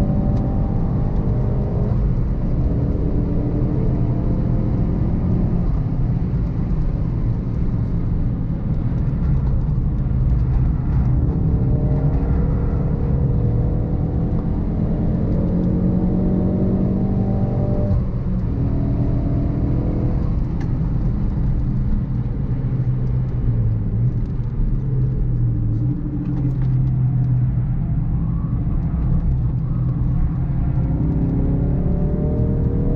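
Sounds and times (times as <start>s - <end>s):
road and wind rumble: 0.0s - 32.9s
car engine revving: 8.8s - 27.0s, 29.0s - 32.9s.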